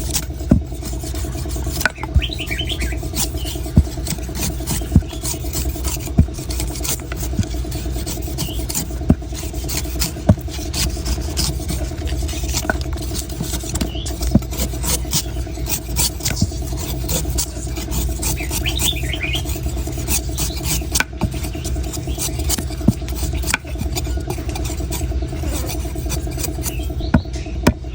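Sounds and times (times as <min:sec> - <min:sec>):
engine humming: 0:00.0 - 0:27.9
sharp knocks: 0:27.1 - 0:27.9.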